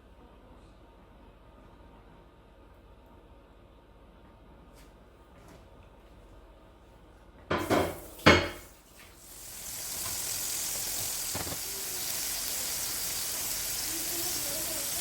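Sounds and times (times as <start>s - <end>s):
pots clanking together: 7.5s - 8.7s
food sizzling in a hot pan: 7.6s - 15.0s.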